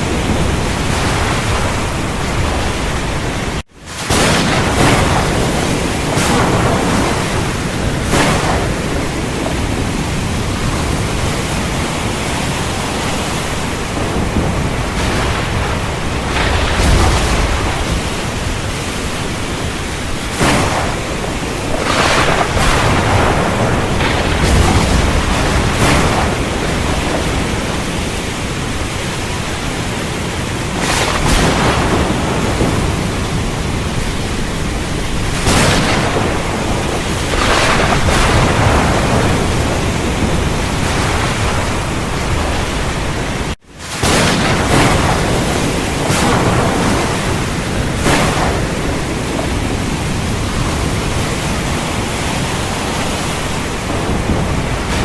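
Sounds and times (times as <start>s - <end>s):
deep thunder rumbles: 0.0s - 55.0s
heavy rain: 0.0s - 55.0s
sharp thunder cracks: 0.0s - 55.0s.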